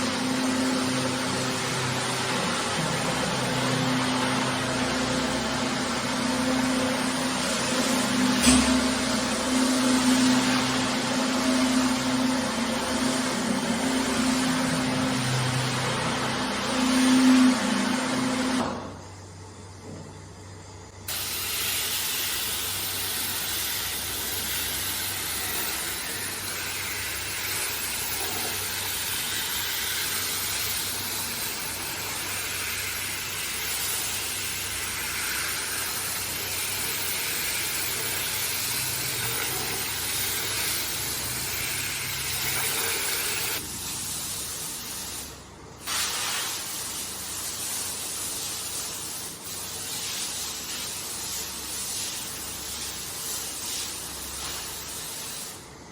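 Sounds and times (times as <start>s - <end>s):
water sprayer hissing: 21.1s - 55.9s.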